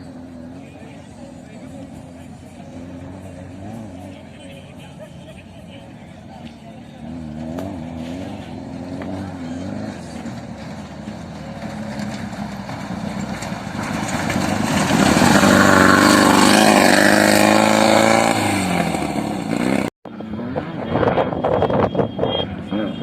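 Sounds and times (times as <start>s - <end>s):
vehicle engine revving: 0.0s - 23.0s.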